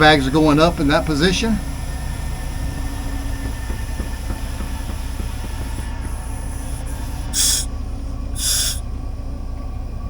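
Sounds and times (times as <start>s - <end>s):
air valve hissing: 0.0s - 8.8s
engine idling: 0.0s - 10.0s
burst of escaping air: 2.8s - 7.8s, 8.4s - 8.8s.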